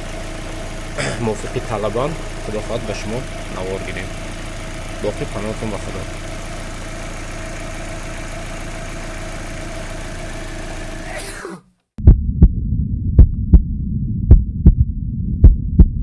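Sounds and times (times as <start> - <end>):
car engine idling: 0.0 - 11.2
heartbeat-like double thump: 12.0 - 16.0
low hum: 12.0 - 16.0.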